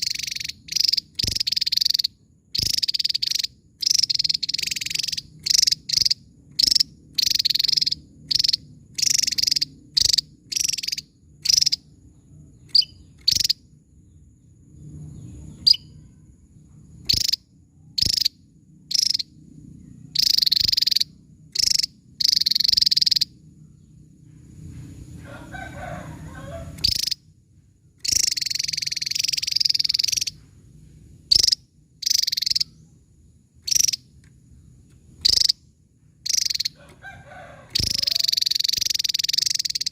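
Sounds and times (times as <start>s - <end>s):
bird singing high bursts: 0.0s - 11.9s, 20.1s - 23.4s, 26.7s - 27.2s, 28.0s - 30.4s, 31.3s - 33.0s, 36.2s - 36.8s, 37.7s - 39.9s
faint low hum: 0.0s - 39.9s.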